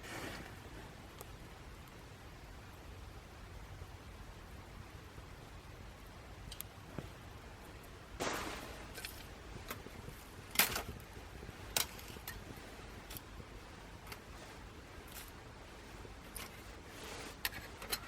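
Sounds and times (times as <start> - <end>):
twig fire crackling: 6.4 - 18.0
fire popping: 8.1 - 18.0.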